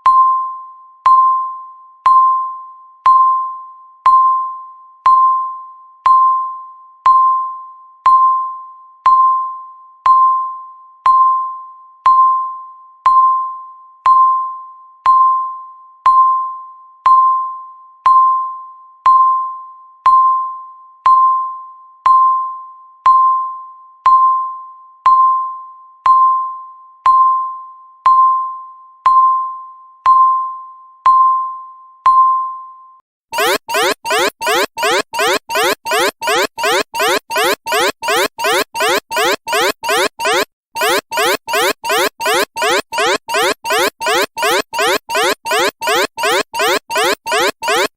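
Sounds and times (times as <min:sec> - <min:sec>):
timer beeping: 0:33.4 - 0:47.9.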